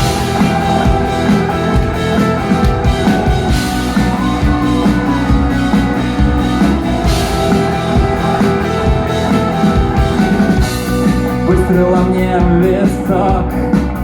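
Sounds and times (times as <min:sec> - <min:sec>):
electric guitar playing: 0:00.0 - 0:12.8
drum kit playing: 0:00.0 - 0:14.0.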